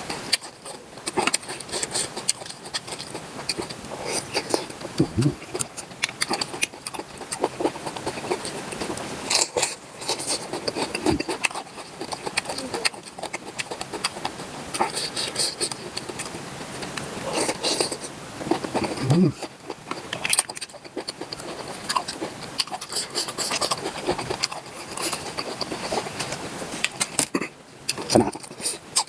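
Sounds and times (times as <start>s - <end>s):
person chewing and smacking: 0.0s - 29.0s.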